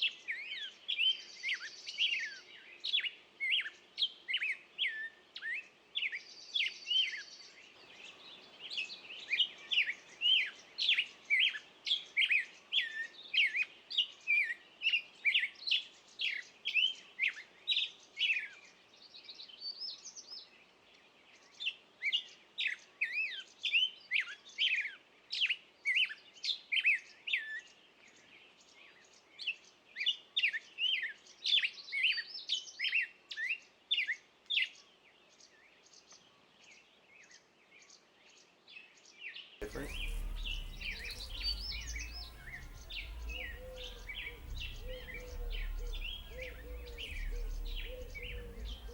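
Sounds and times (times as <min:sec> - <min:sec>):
songbirds chirping: 0:00.0 - 0:24.6, 0:34.8 - 0:48.9.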